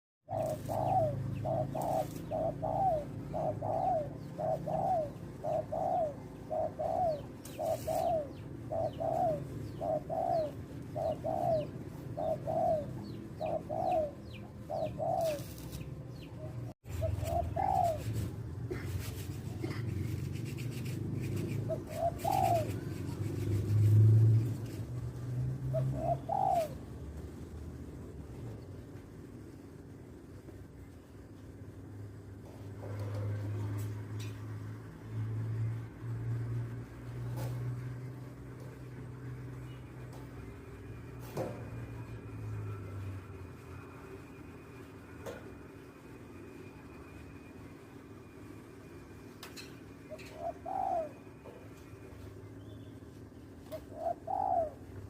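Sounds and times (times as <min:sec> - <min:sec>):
dove cooing: 0:00.3 - 0:26.9, 0:50.1 - 0:51.8, 0:53.7 - 0:55.0.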